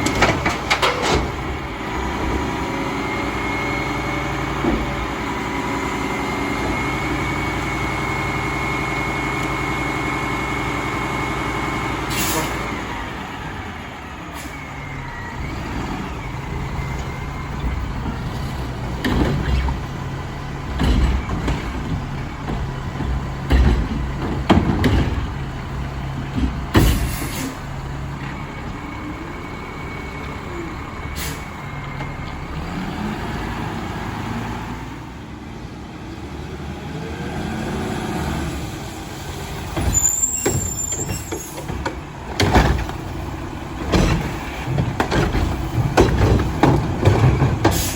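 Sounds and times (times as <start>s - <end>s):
diesel engine running: 0.0s - 47.9s
air brake hiss: 12.1s - 12.6s, 26.9s - 27.6s, 31.2s - 31.5s.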